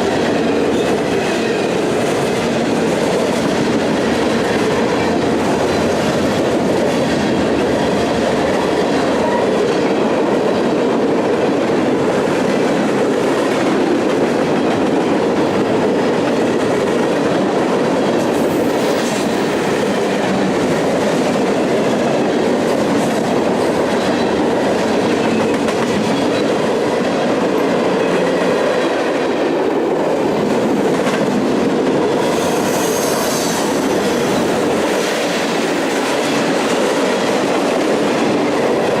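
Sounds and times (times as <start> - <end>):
train wheels clattering on rails: 0.0 - 39.0
high-pitched wheel squeal: 32.3 - 33.7.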